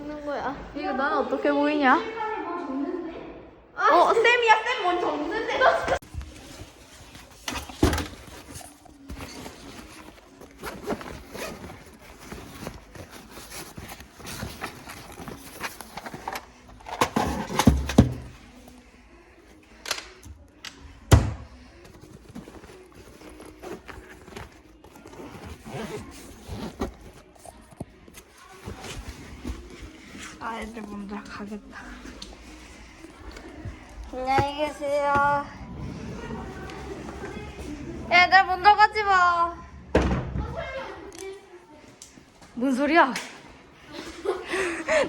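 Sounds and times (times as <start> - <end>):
zip-like rasping and rustling: 8.4 - 16.5, 22.0 - 31.1.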